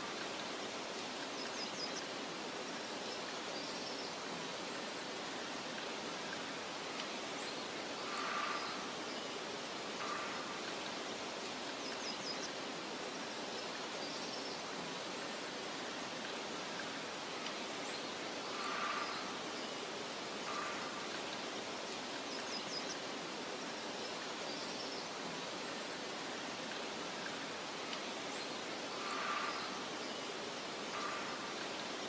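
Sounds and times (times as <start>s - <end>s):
soft wind hiss: 0.0s - 32.0s
faint bird chirps: 7.4s - 11.0s, 17.8s - 23.1s, 27.2s - 32.0s.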